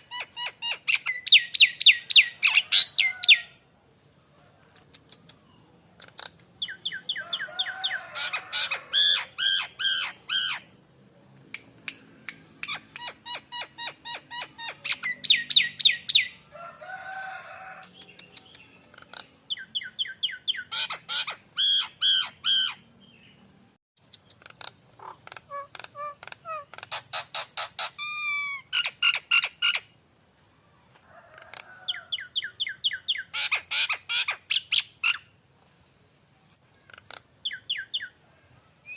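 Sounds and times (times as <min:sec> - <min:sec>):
myna calling: 0:06.1 - 0:10.7, 0:24.4 - 0:29.8.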